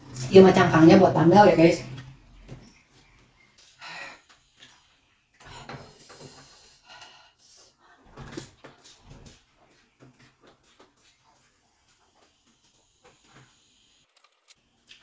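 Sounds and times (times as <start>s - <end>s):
crunching and chewing: 14.1s - 15.0s.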